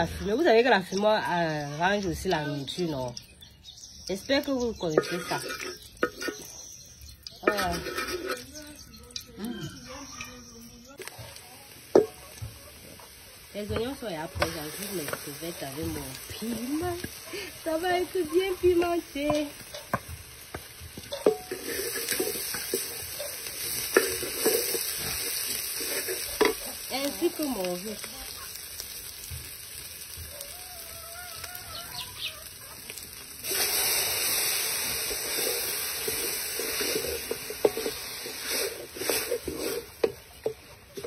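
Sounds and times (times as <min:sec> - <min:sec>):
food frying in oil sizzling: 0:00.0 - 0:41.0
wooden spatula knocking pot: 0:11.9 - 0:12.5, 0:13.6 - 0:17.2, 0:18.2 - 0:24.9.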